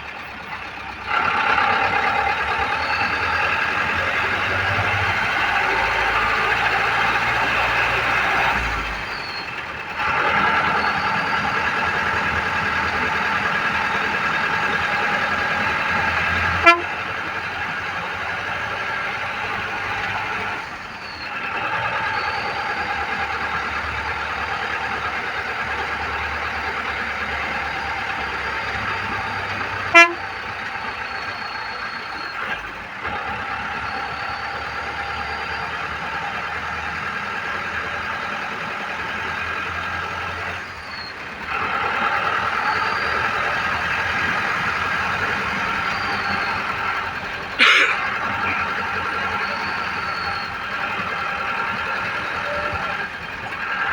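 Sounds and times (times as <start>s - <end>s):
vehicle running: 0.0s - 53.9s.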